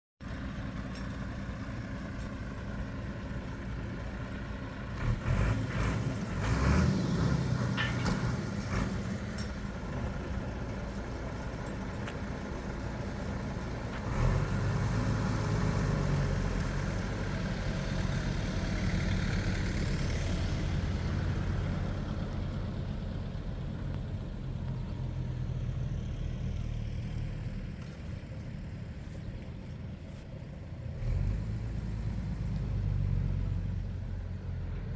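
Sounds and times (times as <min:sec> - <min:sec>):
heavy lorry engine running: 0:00.2 - 0:34.9.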